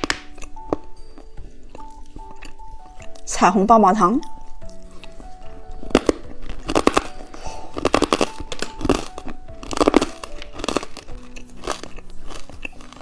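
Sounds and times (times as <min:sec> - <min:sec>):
soft background music: 0:00.0 - 0:13.0
hard candy crunching: 0:04.2 - 0:13.0.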